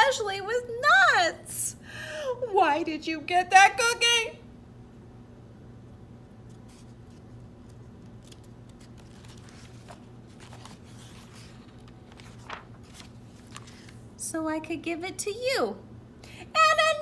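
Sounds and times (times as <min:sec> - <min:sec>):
steady low hum: 0:00.0 - 0:17.0
book pages rustling: 0:06.4 - 0:14.2.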